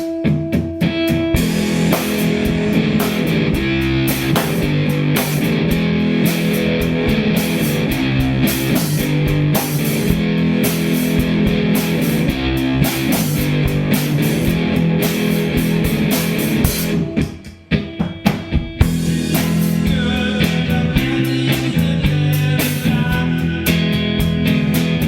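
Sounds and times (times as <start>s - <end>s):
rock band playing: 0.0s - 25.0s
sharp drum hits: 1.3s - 5.7s.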